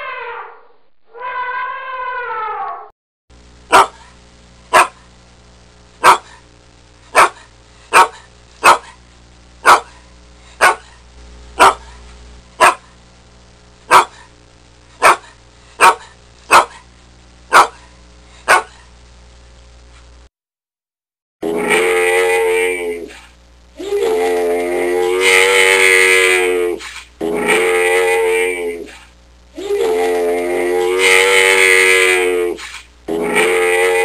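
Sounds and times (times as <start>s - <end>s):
dog barking: 3.7s - 4.1s, 4.7s - 5.0s, 6.0s - 6.4s, 7.1s - 9.0s, 9.6s - 10.0s, 10.6s - 11.0s, 11.6s - 12.0s, 12.6s - 12.9s, 13.9s - 14.3s, 15.0s - 16.8s, 17.5s - 18.9s.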